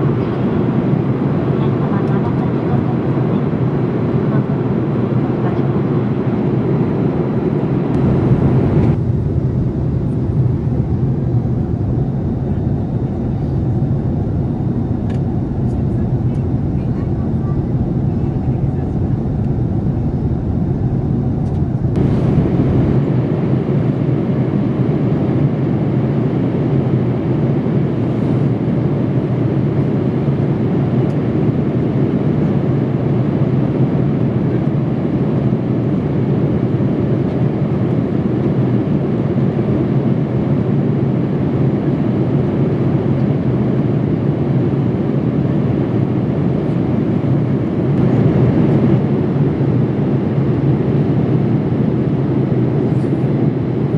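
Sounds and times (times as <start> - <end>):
airliner cabin noise: 0.0 - 25.4, 41.2 - 53.9.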